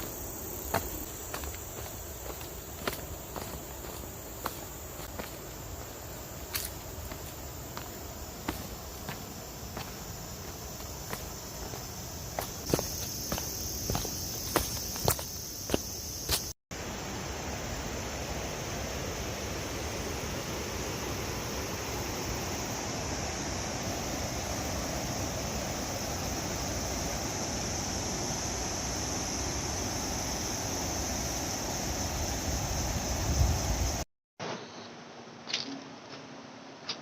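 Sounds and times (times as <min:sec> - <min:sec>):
footsteps: 0:00.0 - 0:16.6
high-pitched insect drone: 0:00.0 - 0:34.0.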